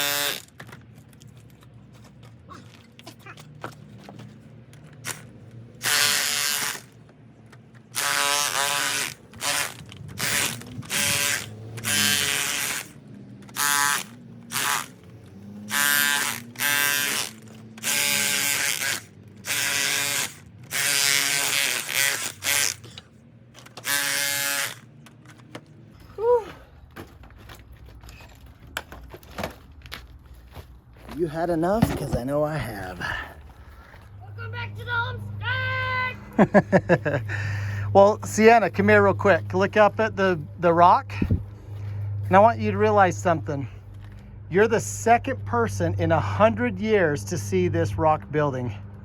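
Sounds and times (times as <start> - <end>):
electric chisel hammering stone: 15.7 - 22.7.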